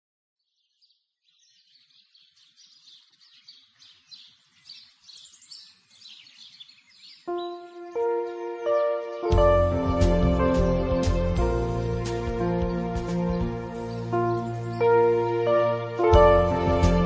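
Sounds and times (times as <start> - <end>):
birds chirping: 0.4 - 17.0
music with held notes: 7.3 - 17.0.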